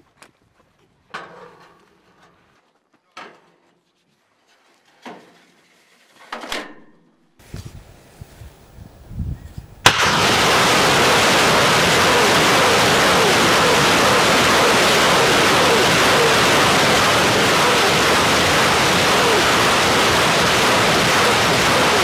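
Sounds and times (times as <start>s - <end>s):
loud blast: 9.8s - 22.0s
rushing roar of rockets: 9.8s - 22.0s.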